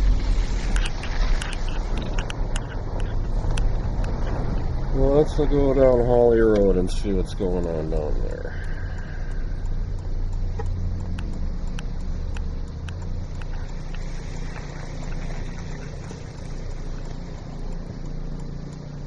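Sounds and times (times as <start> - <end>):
car engine and road rumble: 0.0 - 19.0
faint regular ticking: 0.0 - 19.0.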